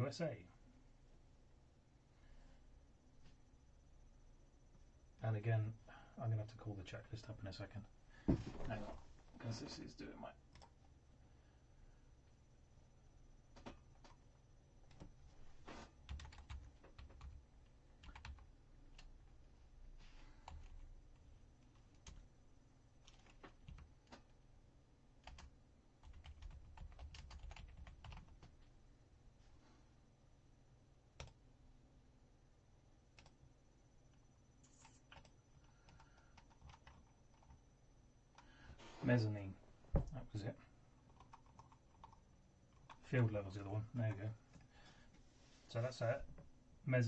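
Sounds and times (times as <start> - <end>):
faint keyboard typing: 10.4 - 11.0, 13.4 - 19.4, 20.0 - 24.5, 25.2 - 28.8, 31.1 - 31.5, 33.0 - 38.7, 41.0 - 43.1.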